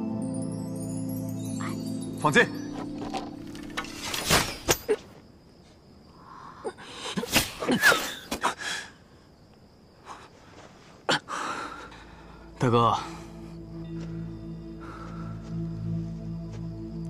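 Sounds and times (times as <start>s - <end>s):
thuds and rustles: 2.8s - 5.2s.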